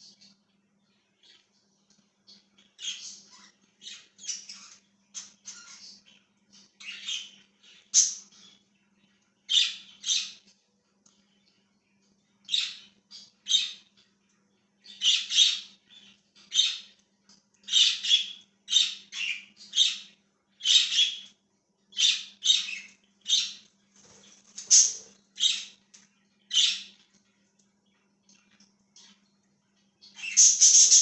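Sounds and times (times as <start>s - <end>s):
budgies chirping and squawking: 2.3s - 11.6s, 12.4s - 14.1s, 14.8s - 17.0s, 17.6s - 27.2s, 30.0s - 31.0s.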